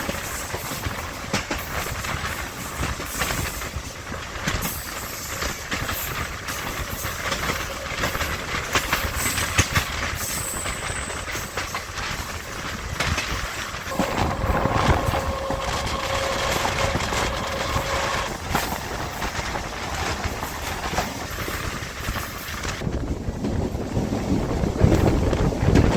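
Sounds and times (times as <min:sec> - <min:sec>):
train wheels clicking over rail joints: 0:00.0 - 0:25.9
steady rushing hiss: 0:13.9 - 0:19.4
steady whine: 0:13.9 - 0:19.7.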